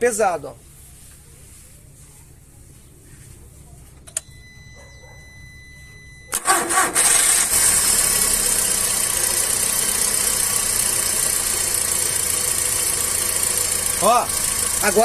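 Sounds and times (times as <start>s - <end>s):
faint steady tone: 4.1s - 6.4s
car engine starting and running: 6.2s - 15.0s.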